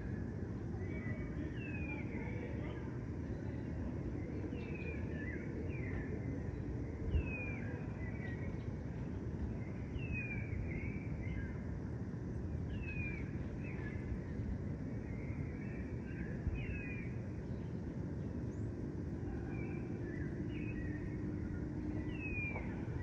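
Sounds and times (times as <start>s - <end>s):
distant traffic rumble: 0.0s - 23.0s
birds whistling: 19.4s - 23.0s.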